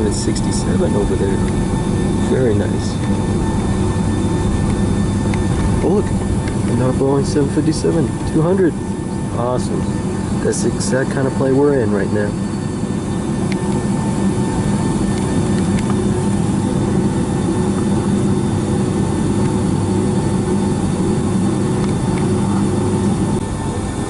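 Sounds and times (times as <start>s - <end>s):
jet engines idling drone: 0.0s - 24.0s.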